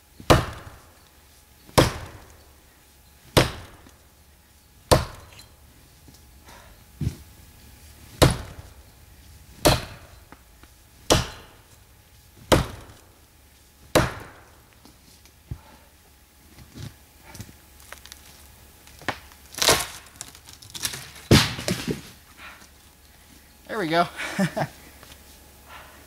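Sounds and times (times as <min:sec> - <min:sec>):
axe chopping into a tree: 0:00.3 - 0:00.8, 0:01.7 - 0:02.4, 0:03.4 - 0:04.0, 0:04.9 - 0:05.4, 0:08.2 - 0:08.8, 0:09.6 - 0:10.2, 0:11.1 - 0:11.7, 0:12.5 - 0:13.1, 0:13.9 - 0:14.6, 0:19.0 - 0:20.1, 0:20.8 - 0:22.1.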